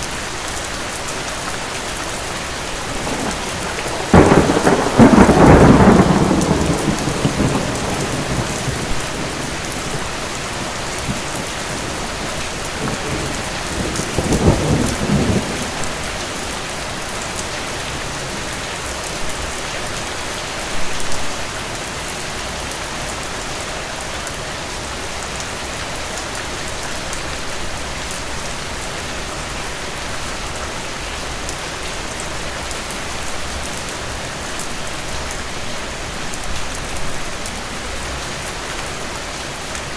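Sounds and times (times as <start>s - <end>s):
heavy rain: 0.0s - 39.9s
thunder rumble: 2.7s - 16.2s.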